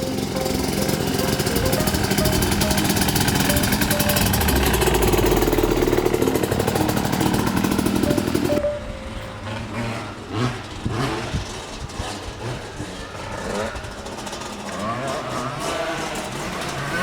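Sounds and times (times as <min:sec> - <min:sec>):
dirt bike engine running: 0:00.0 - 0:08.8.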